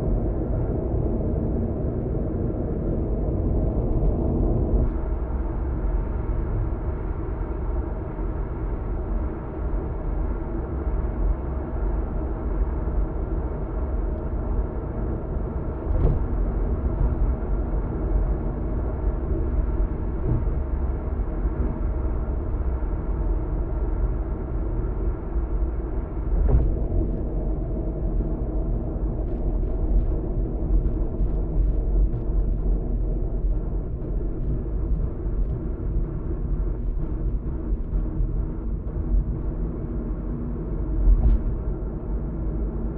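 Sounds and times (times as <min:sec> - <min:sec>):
road and tyre noise: 0:00.0 - 0:42.9
engine hum: 0:13.5 - 0:42.9
thump: 0:15.9 - 0:16.3, 0:26.4 - 0:26.8.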